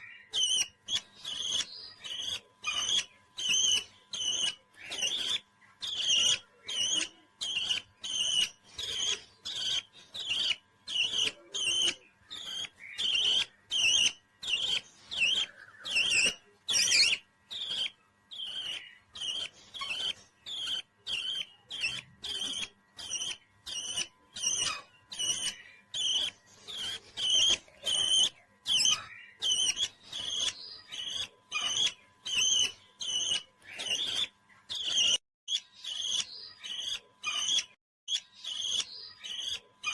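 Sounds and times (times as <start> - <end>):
parrot chirping: 0.0 - 39.9.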